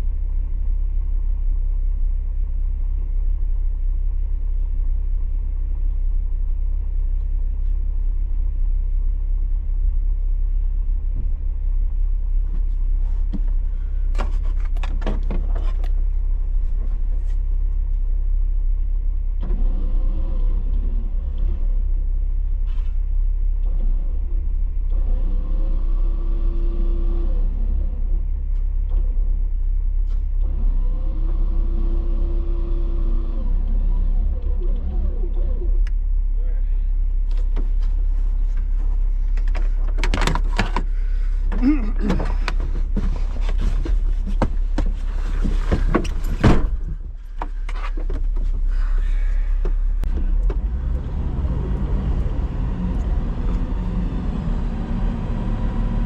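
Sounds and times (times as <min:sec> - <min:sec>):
heavy vehicle rumble: 0:00.0 - 0:56.0
engine revving: 0:48.7 - 0:56.0.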